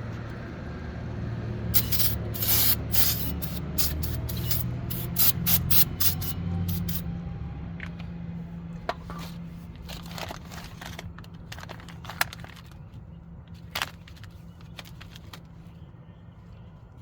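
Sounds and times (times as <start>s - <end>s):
aerosol spray hissing bursts: 1.8s - 7.0s.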